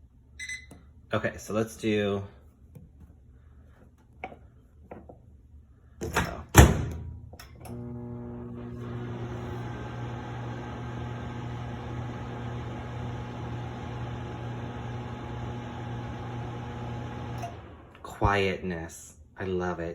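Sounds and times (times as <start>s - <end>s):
microwave oven humming: 6.2s - 18.2s.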